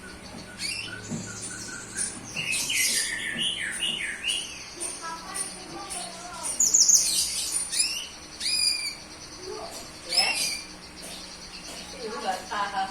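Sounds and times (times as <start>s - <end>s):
bird chirping and whistling: 0.0s - 4.7s, 6.6s - 9.2s, 10.0s - 11.8s.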